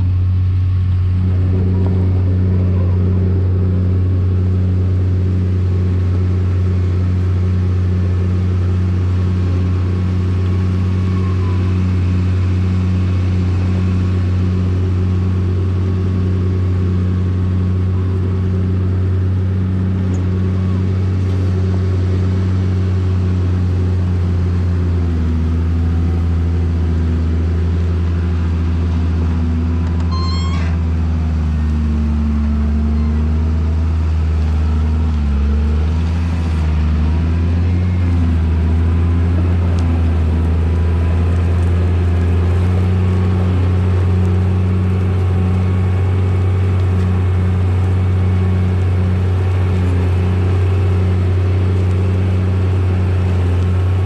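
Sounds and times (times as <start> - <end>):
diesel engine droning: 0.0 - 54.0
brief high chirp: 30.1 - 30.8.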